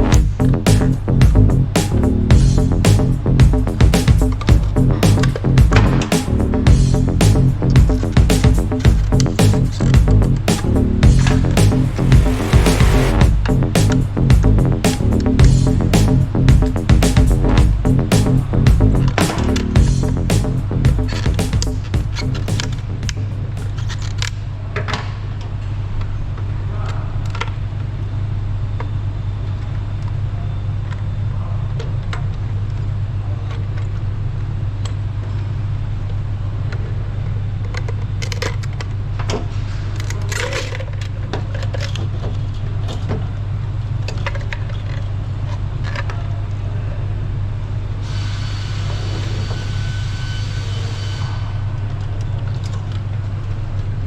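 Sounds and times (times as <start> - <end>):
steady low hum: 0.0 - 24.3.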